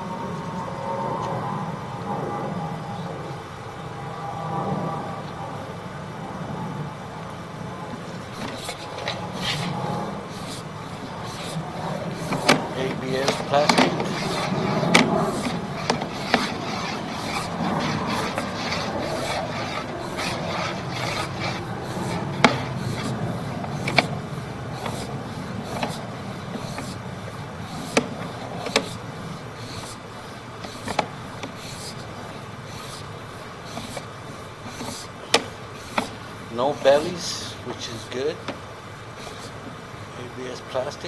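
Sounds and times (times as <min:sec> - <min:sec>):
cable scraping in a drain: 0:08.0 - 0:39.6.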